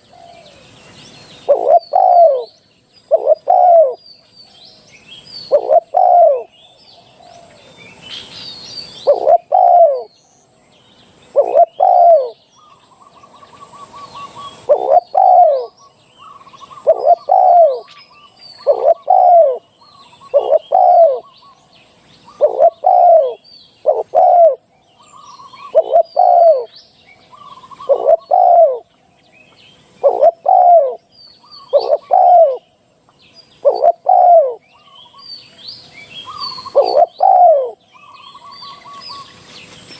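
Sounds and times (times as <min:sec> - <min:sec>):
small birds chirping: 0:00.0 - 0:39.9
dove cooing: 0:01.3 - 0:04.0, 0:05.4 - 0:06.5, 0:08.9 - 0:10.2, 0:11.3 - 0:12.4, 0:13.1 - 0:21.6, 0:22.2 - 0:28.9, 0:29.8 - 0:32.7, 0:33.6 - 0:35.2, 0:36.1 - 0:39.3
quick trilling bird call: 0:36.2 - 0:39.3.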